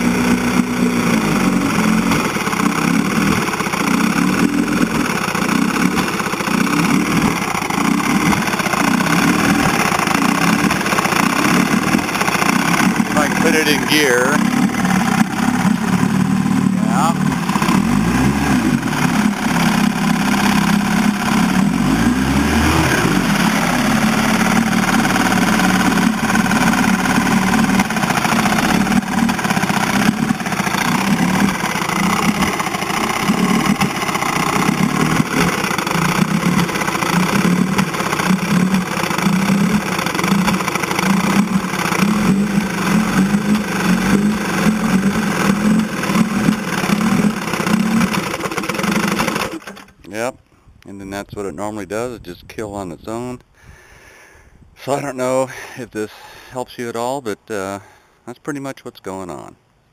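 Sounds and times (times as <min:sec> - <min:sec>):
outboard motor idling roughly: 0:00.0 - 0:50.1.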